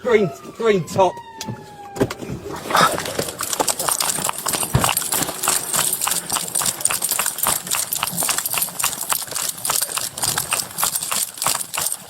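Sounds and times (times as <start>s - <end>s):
running footsteps on hard ground: 2.8s - 12.0s.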